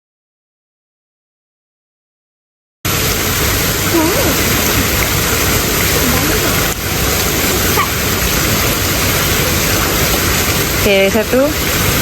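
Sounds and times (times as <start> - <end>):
rushing falling water: 2.9 - 12.0
faint voices: 3.8 - 11.6.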